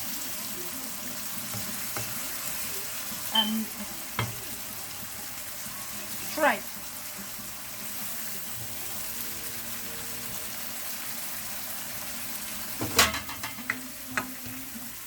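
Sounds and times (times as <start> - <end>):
food sizzling in a pot: 0.0 - 15.0
clatter against a pot: 12.8 - 14.4.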